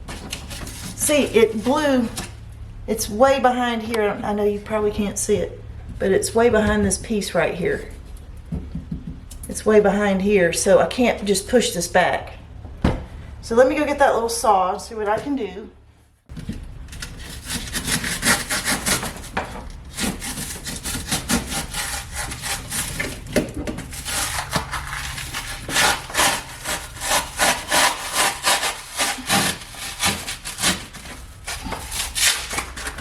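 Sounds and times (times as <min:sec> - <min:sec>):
hand saw sawing through foam: 0:17.2 - 0:33.0.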